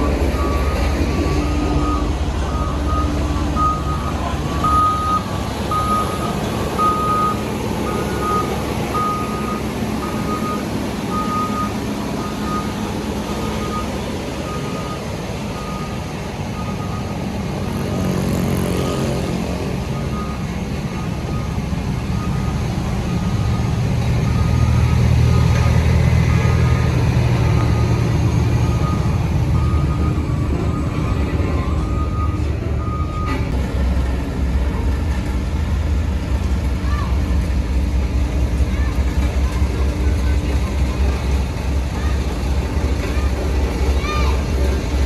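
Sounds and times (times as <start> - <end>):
reversing alarm beeping: 0.0 - 17.2, 19.9 - 27.0, 27.6 - 33.5
diesel engines running: 0.0 - 45.0.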